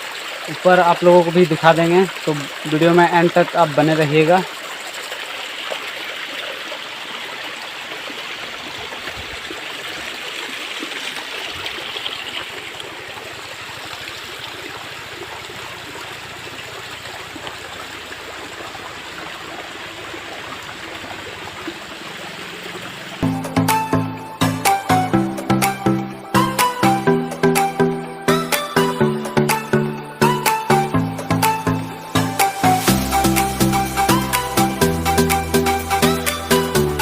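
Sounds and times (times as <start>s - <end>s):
waterfall rushing and splashing: 0.0s - 23.8s, 29.5s - 37.0s
loud music: 23.2s - 37.0s.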